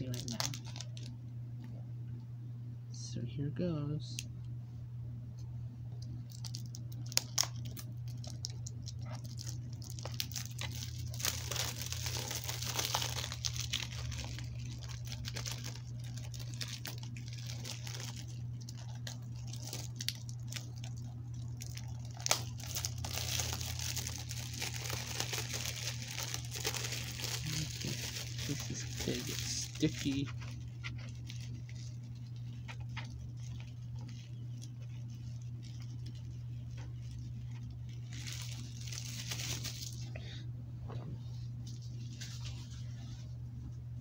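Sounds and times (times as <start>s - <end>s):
plastic shrink wrap tearing: 0.0s - 1.1s, 6.2s - 40.1s.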